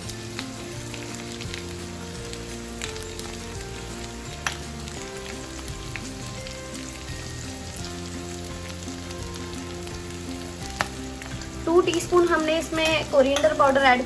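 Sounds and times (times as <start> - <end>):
potatoes frying in hot oil: 0.0 - 14.0
soft background music: 0.0 - 14.0.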